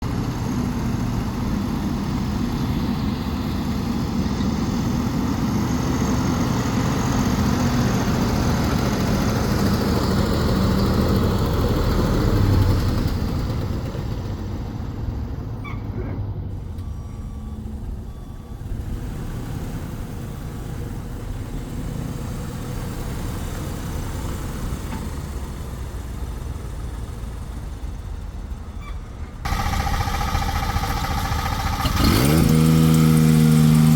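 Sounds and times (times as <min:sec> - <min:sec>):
truck engine running: 0:16.4 - 0:33.9.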